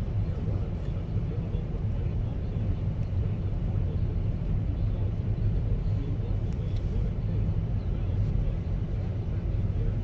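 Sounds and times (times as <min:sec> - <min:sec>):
car engine and tyre noise: 0:00.0 - 0:10.0.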